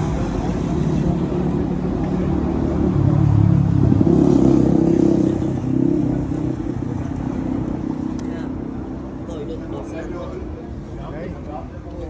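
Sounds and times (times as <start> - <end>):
vehicle engine accelerating: 0.0 - 9.5.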